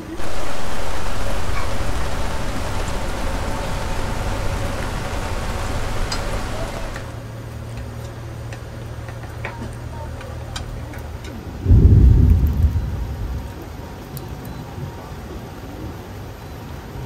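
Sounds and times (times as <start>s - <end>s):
heavy rain falling: 0.0s - 7.3s, 11.5s - 15.6s
low steady hum: 0.0s - 7.4s, 10.0s - 14.6s.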